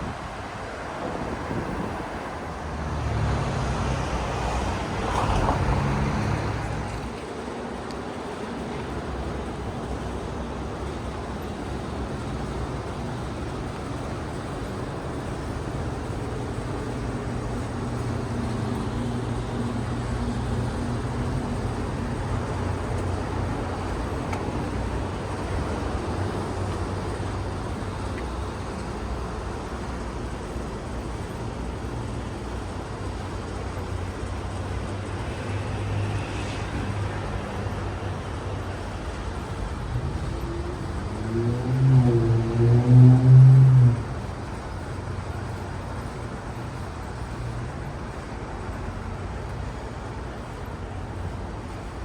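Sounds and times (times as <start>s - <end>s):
road traffic engine hum: 0.0s - 52.0s.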